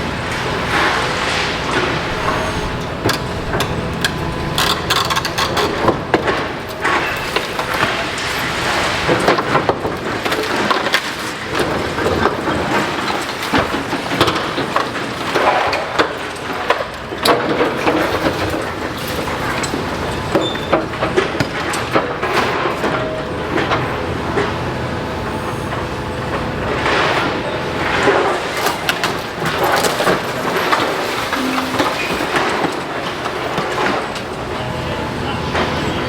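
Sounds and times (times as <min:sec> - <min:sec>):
crunching and crashing of rubble: 0:00.0 - 0:24.6.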